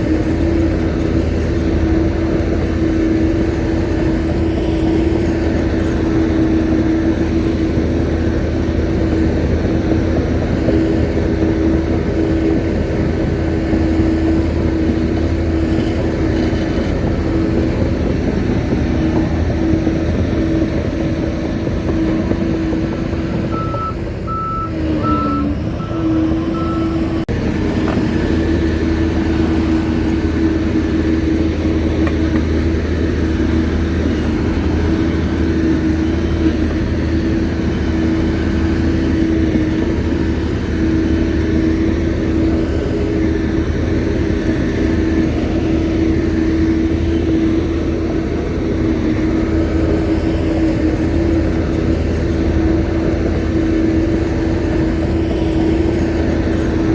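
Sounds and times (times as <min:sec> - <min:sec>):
bulldozer diesel engine whining: 0:00.0 - 0:56.9
reverse alarm beeps: 0:23.5 - 0:27.2.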